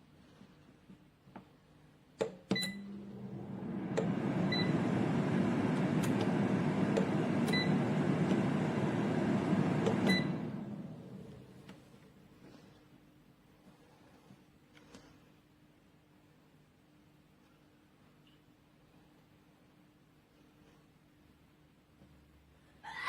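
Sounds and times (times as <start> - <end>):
air fryer fan running: 2.6 - 12.0
clicks: 5.7 - 8.5, 9.7 - 11.8.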